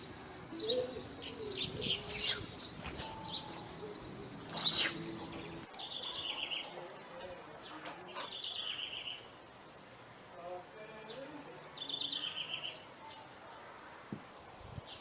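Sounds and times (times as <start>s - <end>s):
small birds chirping and twittering: 0.0s - 15.0s.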